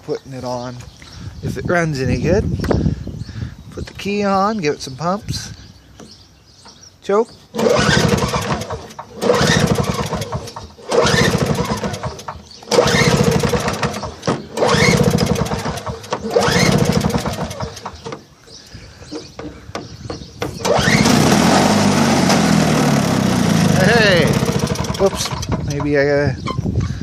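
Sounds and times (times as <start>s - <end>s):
small engine running: 7.5s - 18.0s, 20.6s - 25.8s
engine starter pulls: 7.5s - 18.2s, 20.4s - 26.7s.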